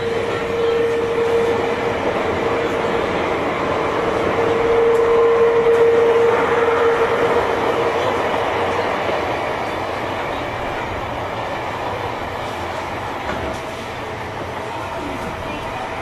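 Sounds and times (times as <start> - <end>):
train wheel and track rumble: 0.0 - 16.0.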